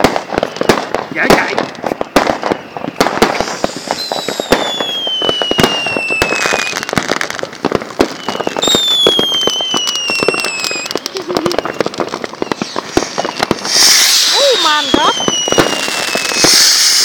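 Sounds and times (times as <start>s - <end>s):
falling firework whistles: 0.0s - 17.0s
firecrackers cracking and popping: 0.0s - 17.0s.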